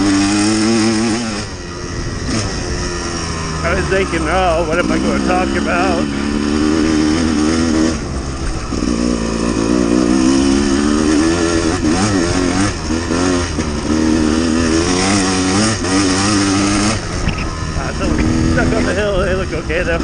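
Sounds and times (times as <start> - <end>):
dirt bike engine: 0.0 - 20.0.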